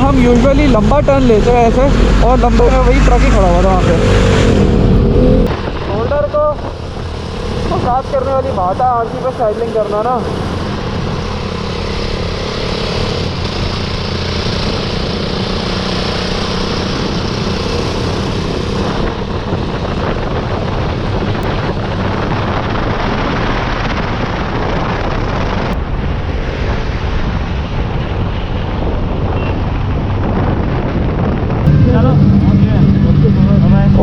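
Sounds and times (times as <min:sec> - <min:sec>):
wind noise on microphone: 0:00.0 - 0:08.9, 0:10.1 - 0:34.0
motorcycle engine running: 0:31.7 - 0:34.0.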